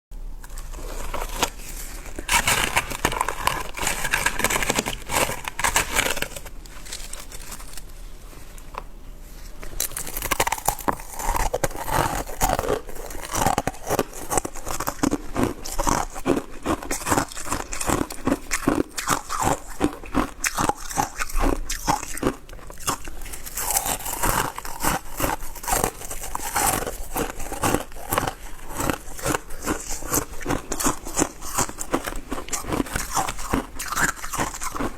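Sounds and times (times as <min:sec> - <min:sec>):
ice crunching while chewed: 0:00.4 - 0:08.9, 0:09.5 - 0:34.9.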